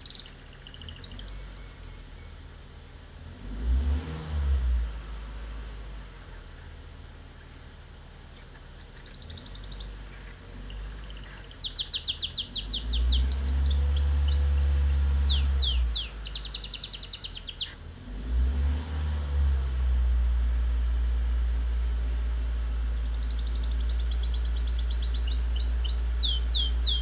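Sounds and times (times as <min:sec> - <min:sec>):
songbird chirping in trills: 0:00.0 - 0:03.4, 0:04.8 - 0:17.9, 0:20.1 - 0:27.0.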